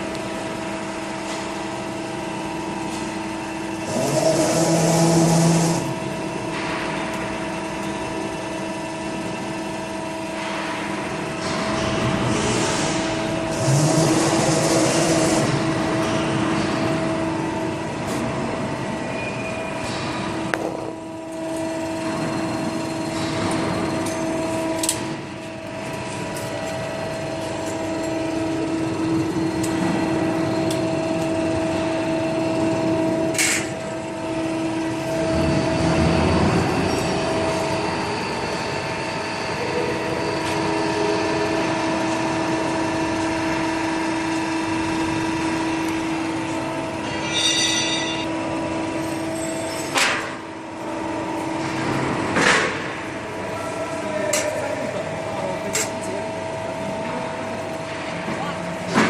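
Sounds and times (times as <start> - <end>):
press brake machine hum: 0.0 - 59.0
workshop noise: 0.0 - 59.0.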